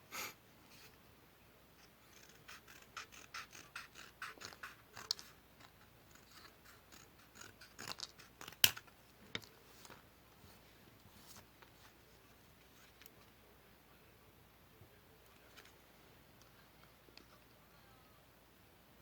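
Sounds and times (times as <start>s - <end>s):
scissors snipping paper: 2.1s - 8.9s.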